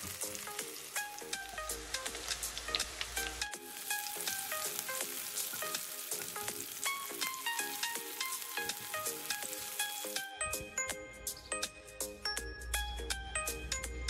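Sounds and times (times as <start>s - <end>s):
vegetables sizzling in hot oil: 0.0s - 10.3s
light plinking music: 0.0s - 14.0s.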